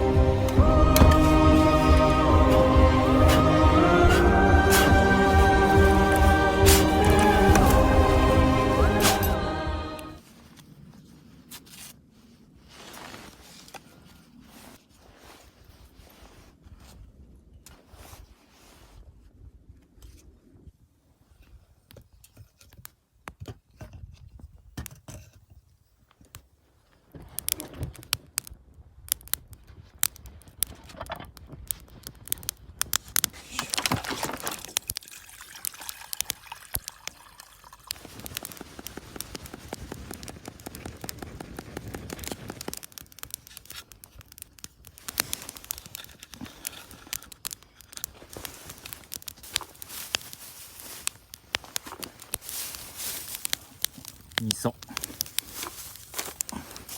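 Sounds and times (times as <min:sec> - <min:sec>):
utensils clicking and scraping: 0:02.4 - 0:08.2, 0:42.2 - 0:56.9
liquid pouring: 0:33.6 - 0:38.6.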